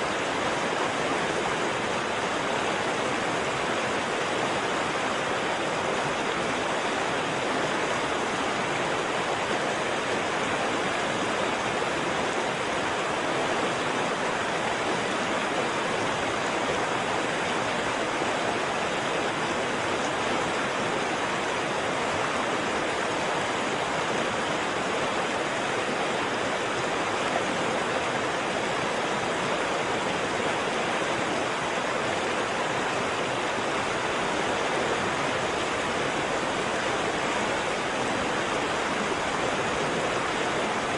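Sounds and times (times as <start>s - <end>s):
waterfall roaring: 0.0s - 40.9s.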